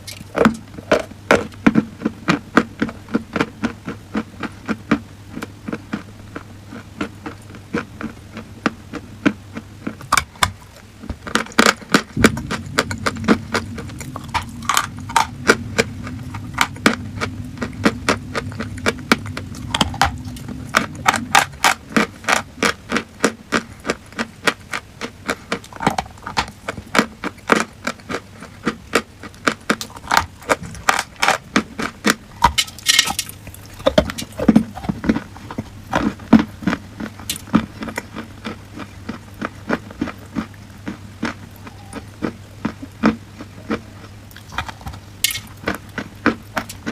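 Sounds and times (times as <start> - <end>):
low steady hum: 0.0 - 46.9.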